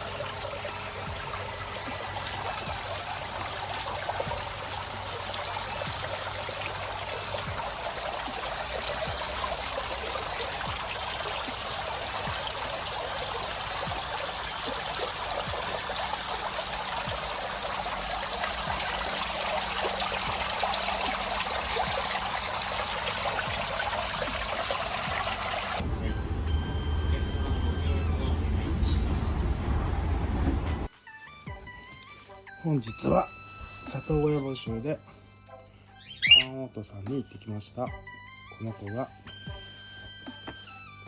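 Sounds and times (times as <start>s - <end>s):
running water trickling: 0.0s - 25.8s.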